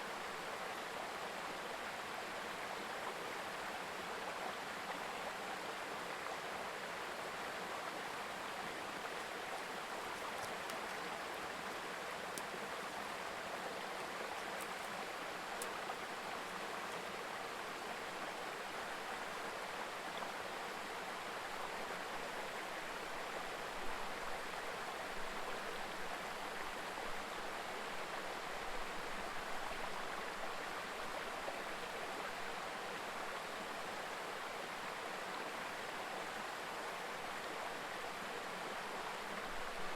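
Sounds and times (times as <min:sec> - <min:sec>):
stream babbling over rocks: 0:00.5 - 0:39.9.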